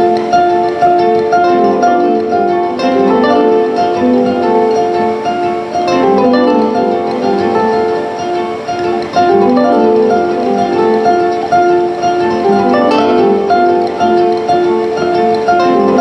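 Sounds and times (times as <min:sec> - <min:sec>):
plucked string instrument: 0:00.0 - 0:16.0.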